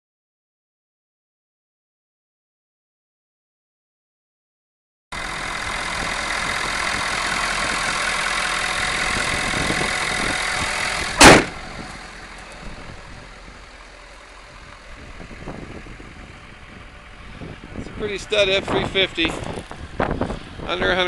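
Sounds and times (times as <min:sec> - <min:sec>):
diesel engine idling: 0:05.1 - 0:21.0
loud slam: 0:11.2 - 0:11.6.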